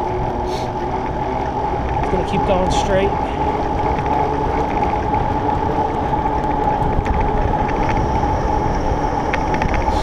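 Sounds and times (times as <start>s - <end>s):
bike tyre hum on pavement: 0.0s - 10.0s
wind on microphone: 1.1s - 10.0s.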